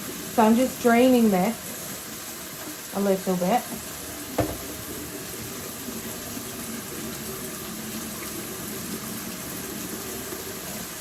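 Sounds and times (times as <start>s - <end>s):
water pouring: 0.0s - 11.0s
knock: 4.4s - 4.8s.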